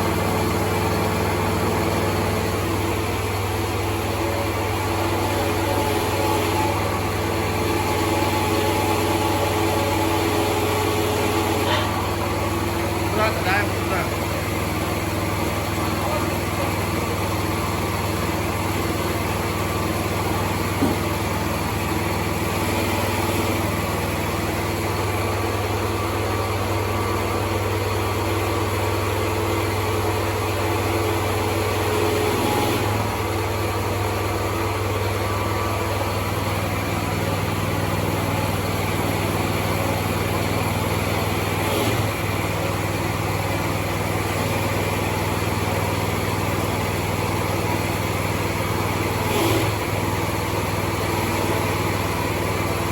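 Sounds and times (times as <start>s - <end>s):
excavator engine running: 0.0s - 52.9s.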